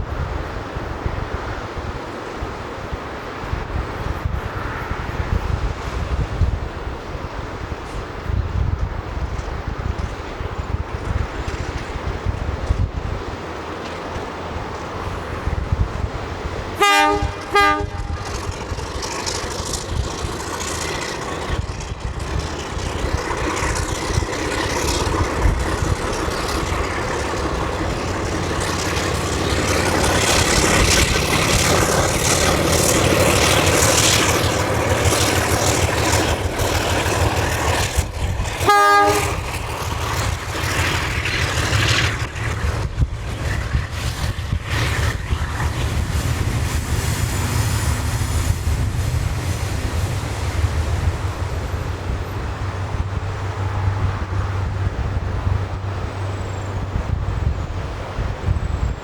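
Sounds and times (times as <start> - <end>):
train rumbling past: 0.0 - 59.0
locomotive horn blast: 16.8 - 18.6, 38.6 - 39.5.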